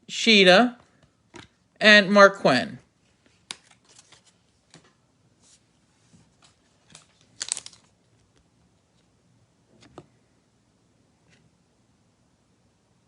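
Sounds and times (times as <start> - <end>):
cards clicking: 3.4 - 4.9, 6.9 - 7.9
foil wrapper crinkling and tearing: 6.9 - 7.9.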